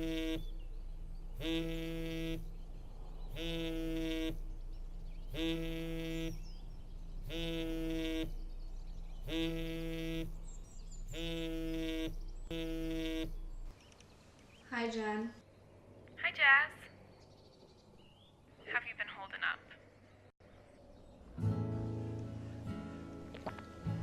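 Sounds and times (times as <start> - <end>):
mobile phone vibrating: 0.0 - 0.6, 1.4 - 2.5, 3.3 - 4.5, 5.3 - 6.5, 7.3 - 8.4, 9.3 - 10.4, 11.1 - 13.4.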